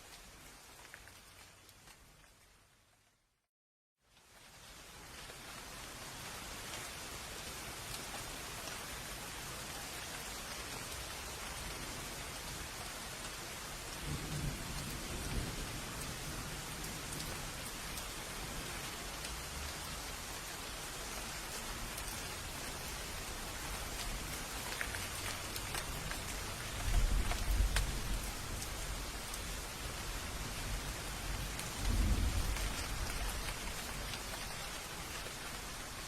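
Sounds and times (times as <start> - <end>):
heavy rain: 4.2 - 36.0
thunder rumbling: 30.8 - 34.2.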